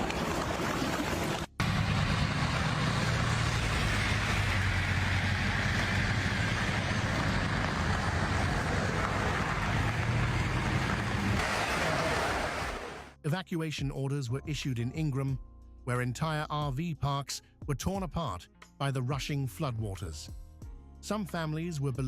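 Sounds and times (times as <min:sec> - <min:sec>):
continuous rushing noise: 0:01.3 - 0:13.1.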